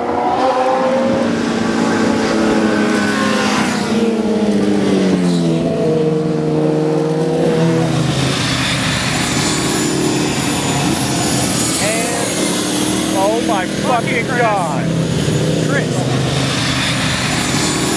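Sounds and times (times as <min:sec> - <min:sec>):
motorcycle engine running hard: 0:00.0 - 0:17.9.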